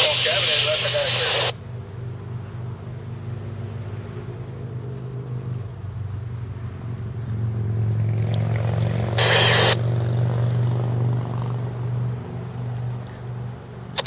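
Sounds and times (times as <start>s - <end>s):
scanner radio squelch static: 0.0s - 1.6s, 9.2s - 9.8s
engine rumble: 0.0s - 14.0s.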